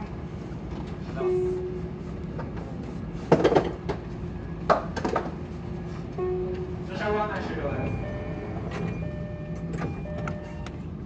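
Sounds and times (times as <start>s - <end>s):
electric train equipment humming: 0.0s - 11.0s
short tone: 6.2s - 6.8s.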